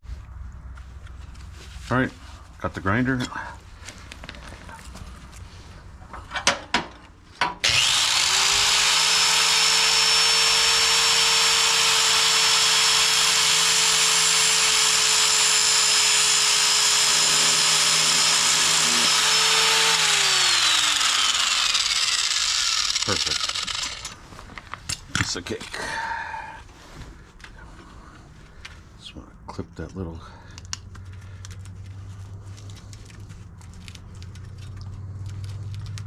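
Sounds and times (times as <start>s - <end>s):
grinder cutting steel cable hiss: 7.6s - 24.2s
grinder motor whine: 7.6s - 24.2s.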